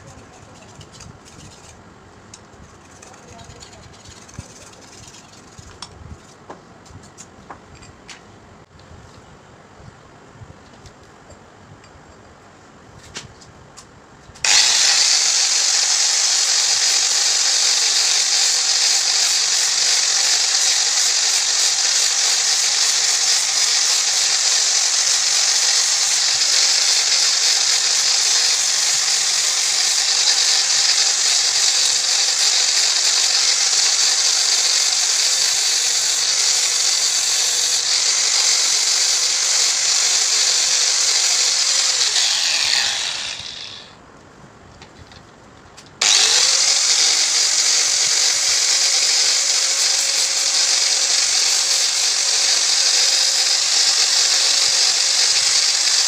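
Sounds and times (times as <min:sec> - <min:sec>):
power tool running: 0:14.4 - 0:44.0, 0:46.0 - 0:56.0
power tool spinning down: 0:14.4 - 0:44.0, 0:46.0 - 0:56.0.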